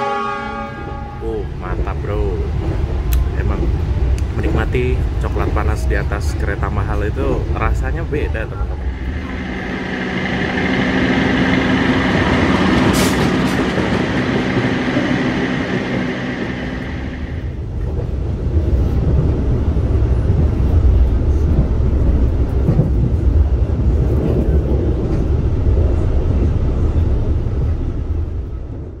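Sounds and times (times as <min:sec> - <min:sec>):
train wheels rumbling on rails: 0:00.8 - 0:29.0
high whine: 0:08.4 - 0:17.7
steady hum: 0:08.7 - 0:17.6.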